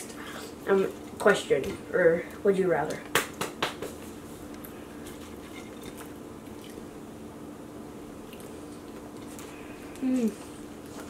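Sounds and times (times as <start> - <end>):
steady low hum: 0.0 - 11.0
quiet chewing and biting: 4.5 - 6.9, 8.2 - 11.0.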